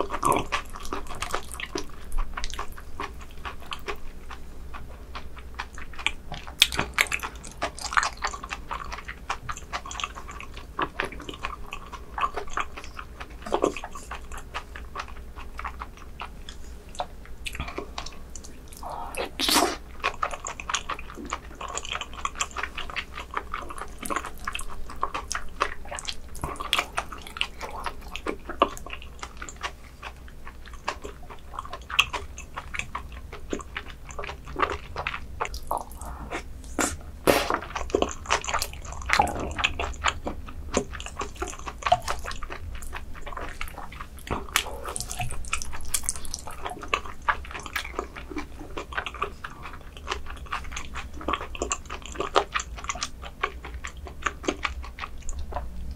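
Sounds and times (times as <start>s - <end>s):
wet chewing: 0.0s - 55.9s
sharp mouth clicks: 35.5s - 37.8s.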